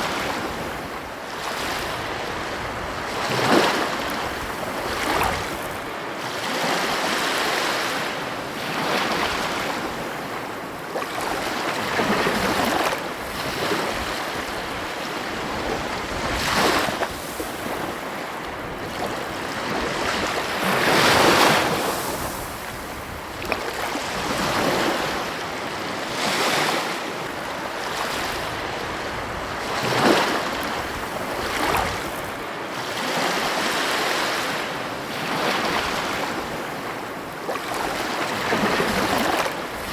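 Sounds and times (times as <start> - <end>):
wind noise on microphone: 0.0 - 7.2, 11.2 - 34.1
ocean waves breaking: 0.0 - 39.9.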